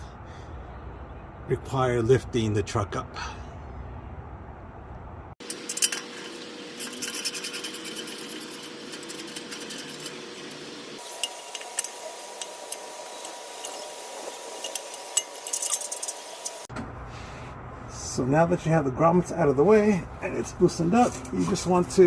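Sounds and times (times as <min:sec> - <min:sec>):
hand tools rubbing and scraping: 0:05.4 - 0:16.7.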